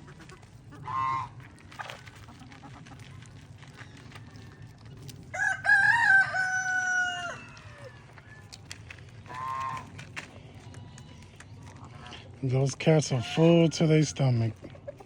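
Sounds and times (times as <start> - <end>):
rooster crowing: 5.3 - 8.5.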